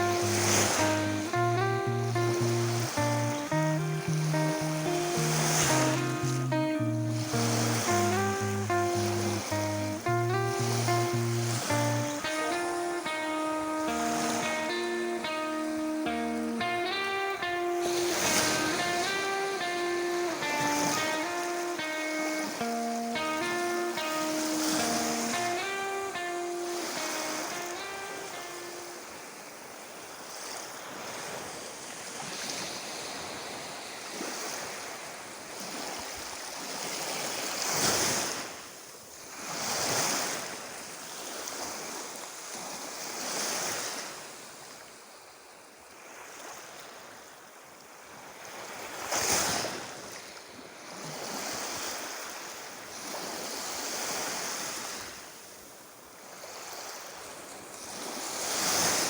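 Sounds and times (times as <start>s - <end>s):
waves breaking on shore: 0.0s - 44.8s, 45.9s - 59.0s.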